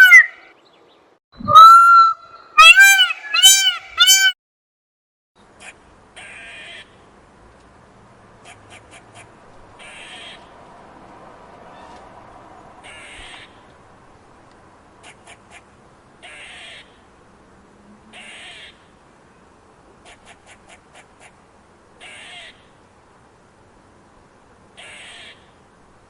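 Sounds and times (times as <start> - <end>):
bird harsh rasping calls: 0.0 - 0.5, 1.4 - 4.4, 8.4 - 10.5, 12.8 - 13.6, 15.0 - 17.0, 18.1 - 18.9, 22.0 - 22.7, 24.8 - 25.6.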